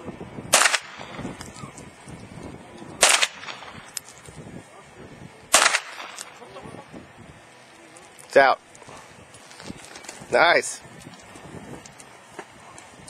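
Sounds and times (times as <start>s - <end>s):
sharp gunshots: 0.5s - 1.4s, 3.0s - 3.9s, 5.5s - 6.4s.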